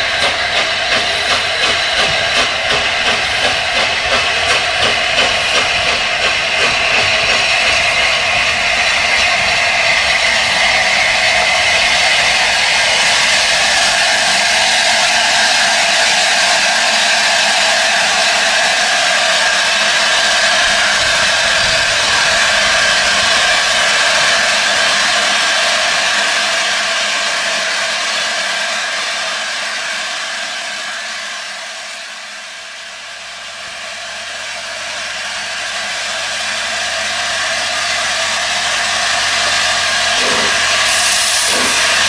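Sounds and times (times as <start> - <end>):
steam locomotive hissing: 0.0 - 42.0.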